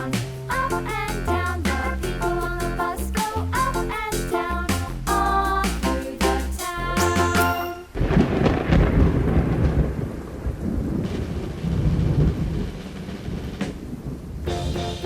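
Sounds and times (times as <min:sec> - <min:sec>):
music: 0:00.0 - 0:07.9, 0:14.5 - 0:15.0
rain: 0:07.9 - 0:14.4
rolling thunder: 0:07.9 - 0:15.0.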